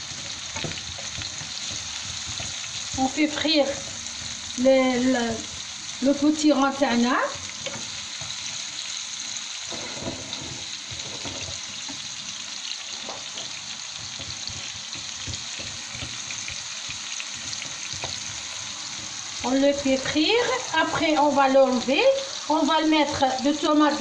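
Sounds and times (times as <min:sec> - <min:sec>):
squash sizzling in a frying pan: 0:00.0 - 0:24.0
wooden spatula stirring: 0:00.1 - 0:04.6, 0:13.0 - 0:18.4.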